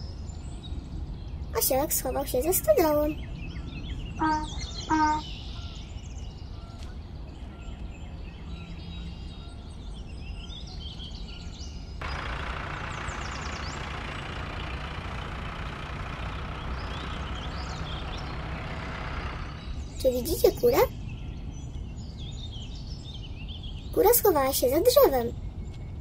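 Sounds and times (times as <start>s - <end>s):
birds chirping: 0.0s - 26.0s
low rural background: 0.0s - 26.0s
tractor engine running: 12.0s - 20.8s.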